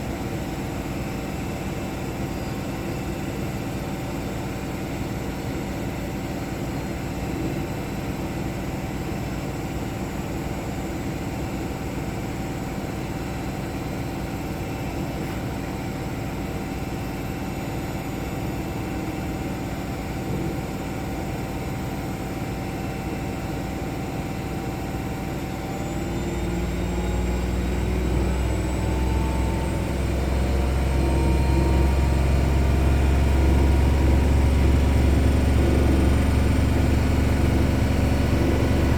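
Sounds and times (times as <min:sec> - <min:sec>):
washing machines spinning: 0:00.0 - 0:38.9
motor whine rising in pitch: 0:25.8 - 0:38.9.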